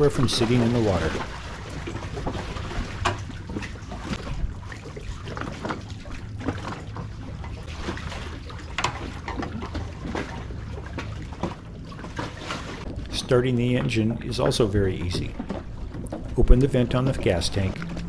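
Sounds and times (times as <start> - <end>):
water trickling and lapping: 0.0 - 18.0
wet lines hauled from water: 0.0 - 18.0
low steady rumble: 12.9 - 18.0.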